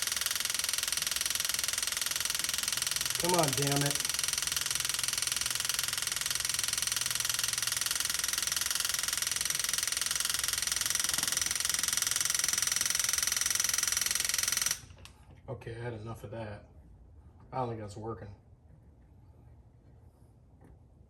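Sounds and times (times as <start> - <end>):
electric fuel pump buzzing: 0.0 - 15.1.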